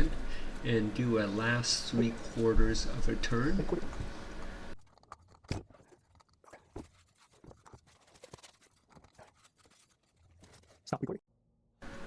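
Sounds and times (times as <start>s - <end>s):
steady background hiss: 0.0s - 4.8s.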